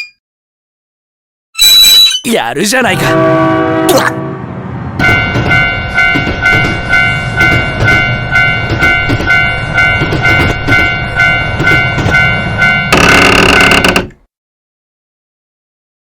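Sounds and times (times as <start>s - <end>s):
train rumbling: 2.7s - 14.2s
railroad crossing bell ringing: 5.0s - 14.0s.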